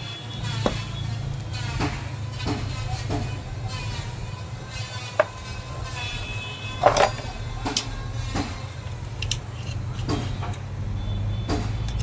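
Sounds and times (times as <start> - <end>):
metal tools clinking on engine parts: 5.2 - 10.8.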